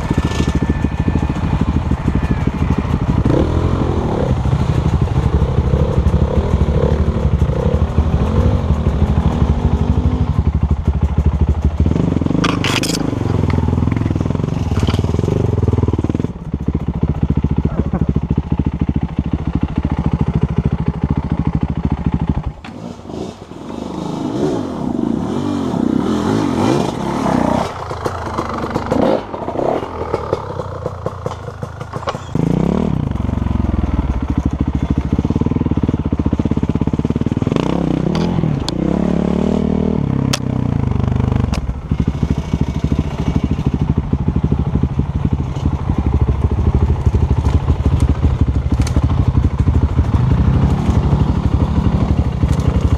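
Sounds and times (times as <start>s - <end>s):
dirt bike engine revving: 0.0s - 16.3s, 17.3s - 52.9s
bike knocking and clattering: 30.1s - 32.4s.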